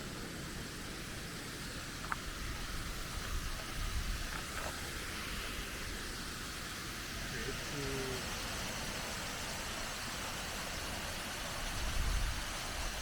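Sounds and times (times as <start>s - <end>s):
low uneven rumble: 0.0s - 10.2s
waterfall rushing: 0.0s - 13.0s.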